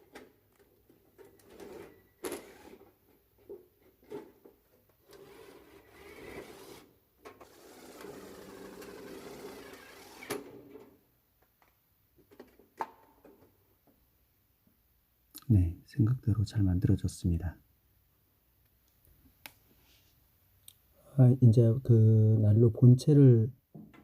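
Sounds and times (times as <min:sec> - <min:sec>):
power drill driving screws into metal: 0:07.4 - 0:10.8.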